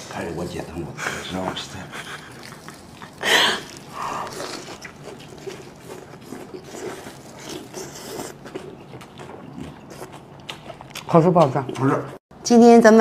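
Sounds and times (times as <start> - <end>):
chewing with small crunches: 2.0 - 12.2.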